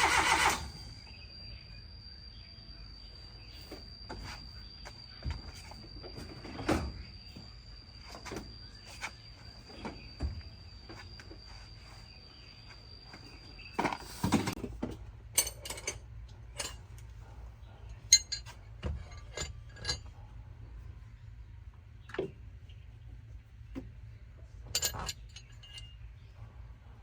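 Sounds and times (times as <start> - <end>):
tools and metal parts clinking: 15.3 - 17.2, 17.9 - 20.3, 24.6 - 26.4.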